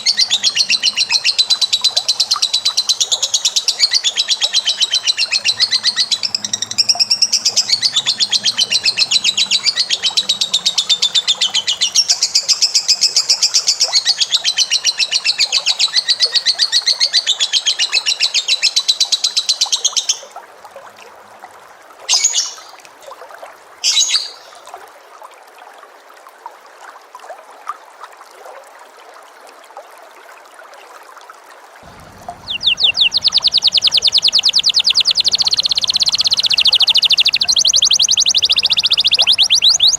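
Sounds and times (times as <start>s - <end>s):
bird chattering trill: 0.0s - 12.6s, 31.9s - 39.9s
short bird calls: 31.9s - 39.9s.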